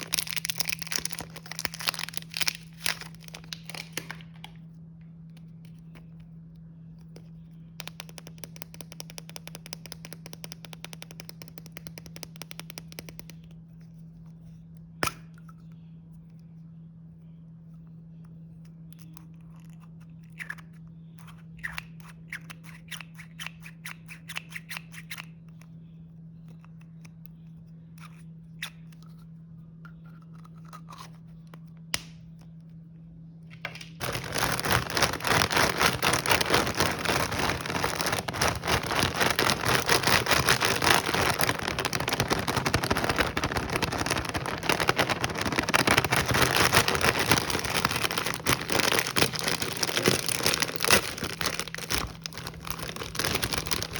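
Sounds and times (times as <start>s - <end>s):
packaging clicks and scrapes: 0.0s - 4.5s, 34.0s - 53.9s
wrapper crinkling: 0.0s - 4.5s, 34.0s - 53.9s.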